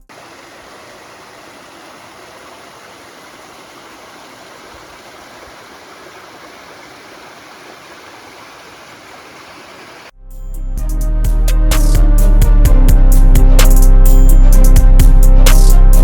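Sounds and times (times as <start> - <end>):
stream water rushing: 0.0 - 10.1.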